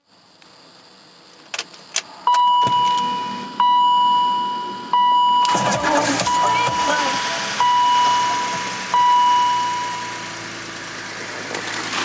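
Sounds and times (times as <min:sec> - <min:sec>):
dashboard warning chime: 0:02.3 - 0:10.4.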